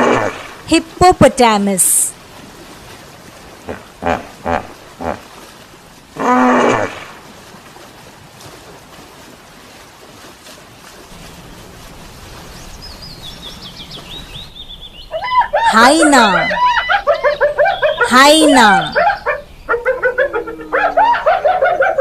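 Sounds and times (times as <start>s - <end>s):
outdoor background noise: 0.0s - 22.0s
hippopotamus grunting and honking: 3.6s - 5.2s
birds chirping: 12.0s - 22.0s.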